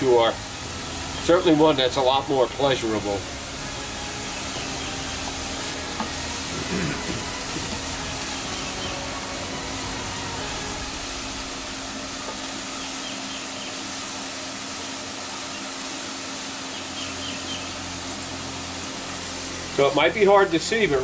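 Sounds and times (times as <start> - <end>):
mushrooms sizzling in oil: 0.0 - 21.0
faint bird chirps: 12.7 - 13.9.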